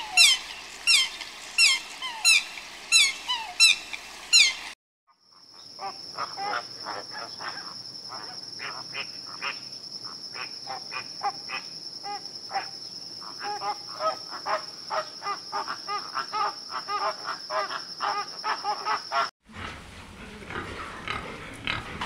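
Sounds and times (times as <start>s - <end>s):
flamingos honking: 0.0s - 4.8s.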